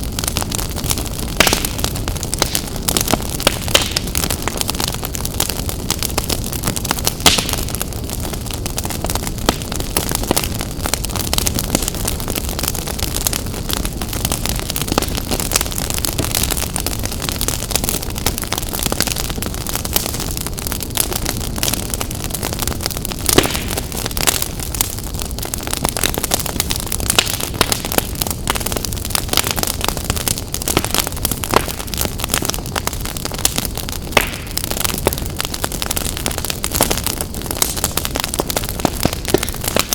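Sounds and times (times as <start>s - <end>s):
fire pops and snaps: 0.0s - 39.9s
low rumble of flames: 0.0s - 39.9s
wood fire crackling: 0.0s - 39.9s.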